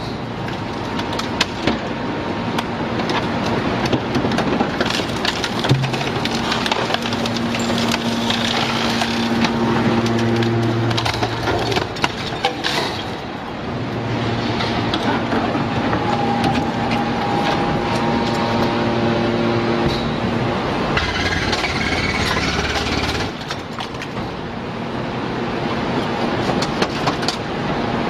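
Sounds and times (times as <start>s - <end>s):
baler machine humming and whining: 0.0s - 28.0s.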